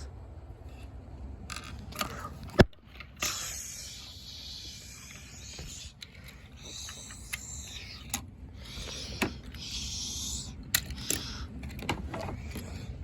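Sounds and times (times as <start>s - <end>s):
spray paint hissing: 3.2s - 11.5s.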